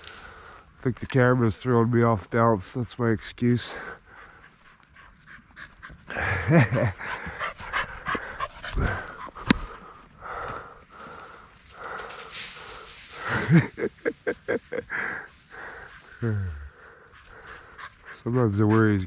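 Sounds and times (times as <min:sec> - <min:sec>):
dog panting: 0:03.7 - 0:13.3, 0:14.9 - 0:19.0.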